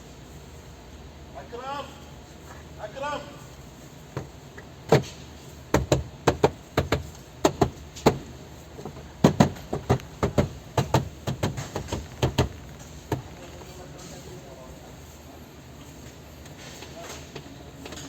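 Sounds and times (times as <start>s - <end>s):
knocks on car door trim panel: 5.7s - 8.2s, 9.2s - 13.3s.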